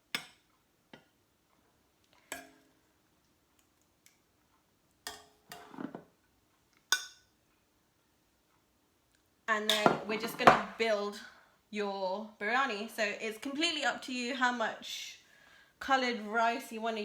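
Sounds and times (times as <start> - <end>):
spoon knocking and scraping a pan: 0.0 - 1.2, 5.1 - 6.2, 9.7 - 10.8.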